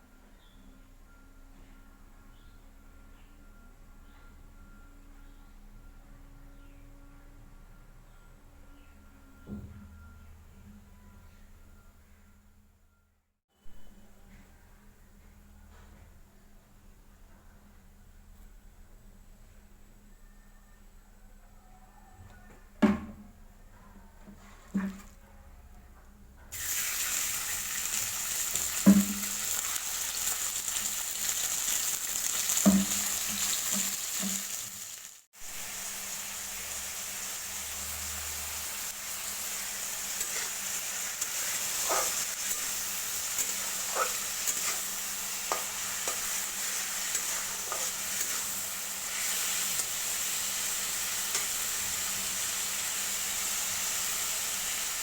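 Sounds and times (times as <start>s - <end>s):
food sizzling in a pan: 26.5s - 55.0s
spatula knocking against pan: 32.7s - 34.4s.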